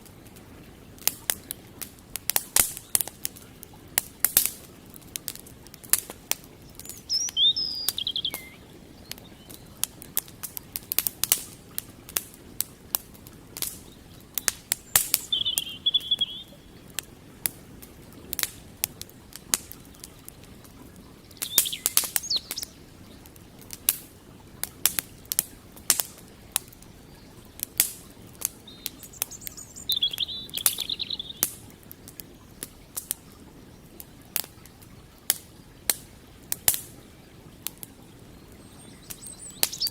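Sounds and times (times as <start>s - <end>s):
campfire crackling and popping: 0.0s - 39.9s
bird calling in high trills: 6.6s - 9.7s, 14.9s - 16.7s, 21.4s - 22.8s, 28.7s - 31.4s, 38.7s - 39.9s.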